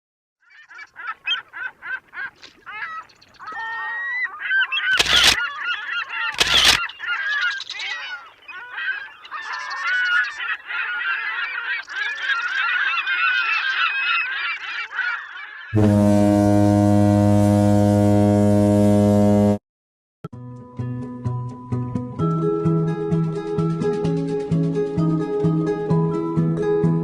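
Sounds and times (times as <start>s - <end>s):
flock of birds calling: 0.4s - 15.8s.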